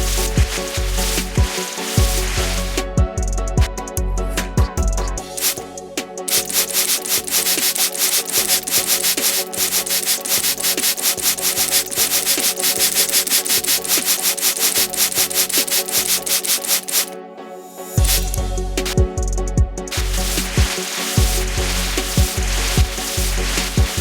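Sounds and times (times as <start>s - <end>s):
brush scrubbing car body: 0.0s - 2.8s, 5.4s - 5.6s, 6.3s - 17.2s, 19.9s - 24.0s.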